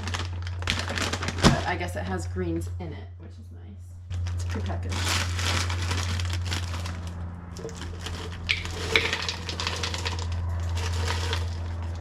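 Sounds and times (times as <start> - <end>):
kitchen items clattering: 7.6 - 12.0.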